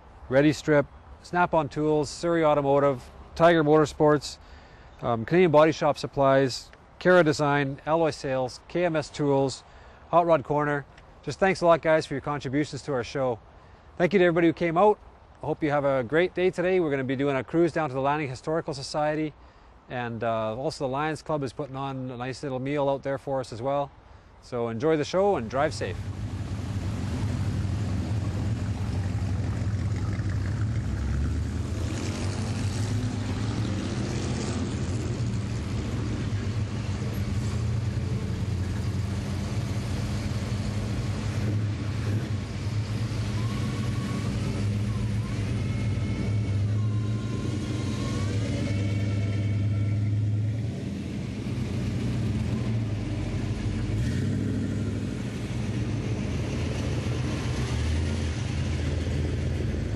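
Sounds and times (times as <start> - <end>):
car engines rumbling: 0.0 - 59.9
high wavering tone: 41.5 - 53.9.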